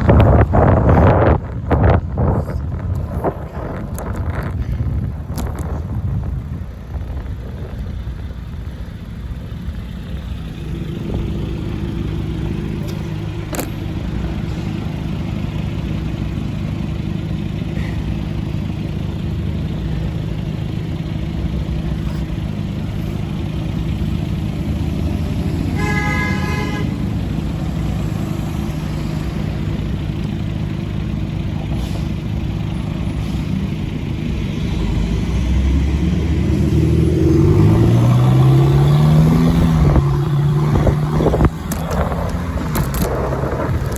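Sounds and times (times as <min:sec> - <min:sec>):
traffic engines humming: 0:00.0 - 0:43.9
car horn toot: 0:25.7 - 0:27.4.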